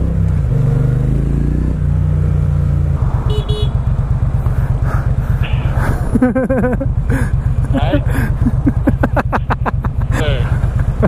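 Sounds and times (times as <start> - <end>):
motorcycle engine running: 0.0 - 11.0
horn beeps: 3.2 - 3.9.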